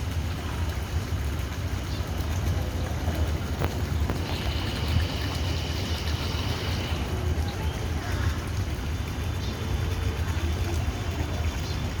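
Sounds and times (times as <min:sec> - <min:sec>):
low rumbling background noise: 0:00.0 - 0:12.0
faint voices: 0:06.1 - 0:12.0.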